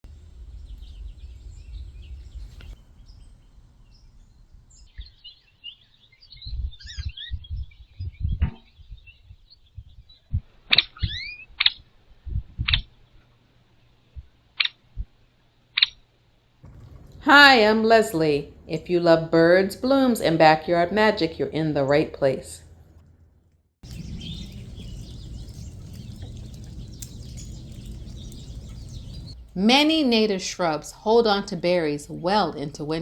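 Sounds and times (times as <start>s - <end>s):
wind rumble on microphone: 0.0s - 5.5s, 6.3s - 11.4s, 12.1s - 13.2s, 16.6s - 20.2s, 23.8s - 30.2s
small birds chirping: 0.1s - 10.4s, 23.8s - 33.0s
sharp bird chips: 23.8s - 29.4s.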